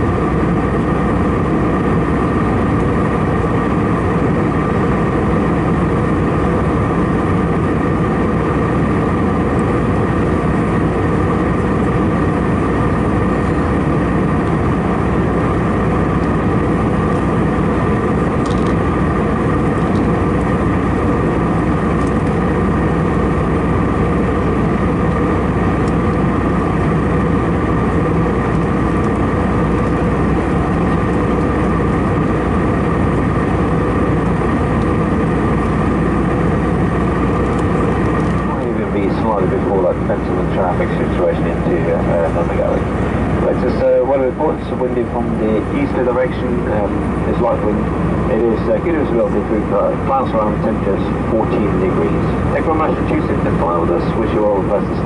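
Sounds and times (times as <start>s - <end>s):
airplane cabin engine hum: 0.0s - 55.0s
rush of airflow: 40.0s - 43.6s.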